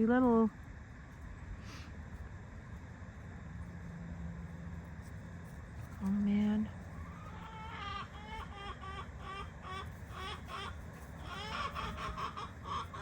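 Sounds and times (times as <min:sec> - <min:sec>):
chickens clucking: 0:06.8 - 0:13.0.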